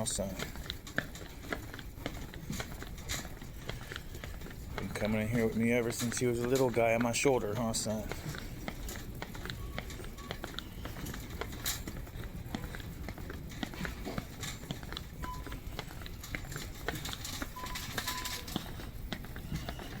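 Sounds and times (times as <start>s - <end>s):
shopping cart wheels rattling: 0.0s - 20.0s
short beeps: 15.2s - 15.7s, 17.6s - 18.6s.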